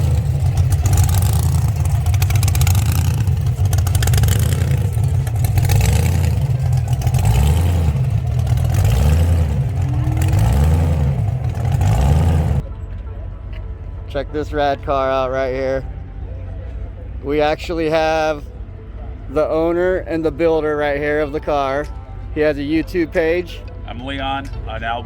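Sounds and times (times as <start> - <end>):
car engine revving: 0.0 - 12.7.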